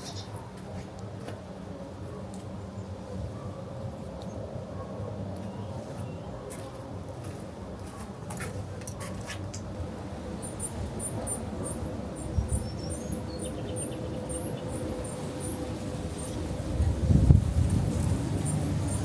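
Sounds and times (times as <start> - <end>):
outdoor background noise: 0.0 - 19.0
bird chirping: 10.4 - 16.5.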